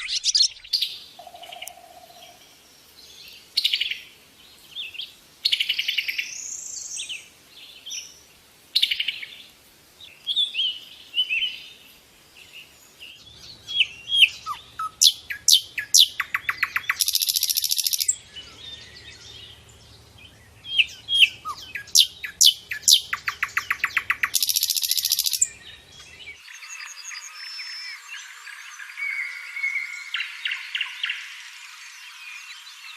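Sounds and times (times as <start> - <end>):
songbirds chirping and singing: 0.0 - 32.9
buzzy bird trills: 14.3 - 18.2, 20.8 - 25.5.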